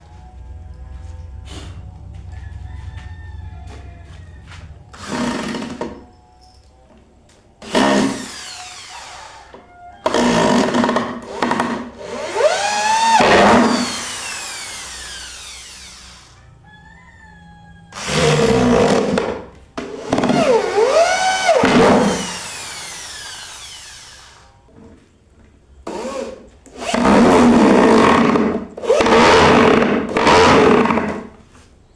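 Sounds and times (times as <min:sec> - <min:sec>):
power drill driving screws into wood: 0:05.0 - 0:06.0, 0:07.6 - 0:16.4, 0:18.0 - 0:24.5, 0:25.9 - 0:31.3.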